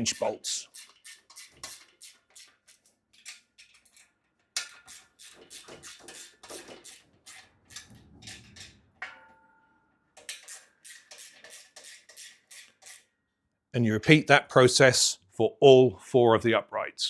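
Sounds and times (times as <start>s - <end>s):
metal part ringing: 8.5s - 9.9s.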